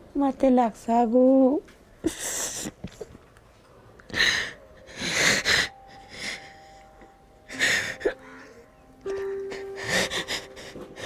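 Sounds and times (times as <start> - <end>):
person crying and sobbing: 4.1 - 11.0.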